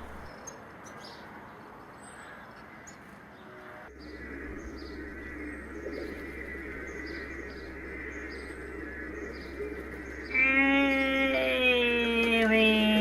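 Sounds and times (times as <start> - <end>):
low hum: 0.0 - 0.3, 3.9 - 13.0
birds calling and chirping: 0.0 - 13.0.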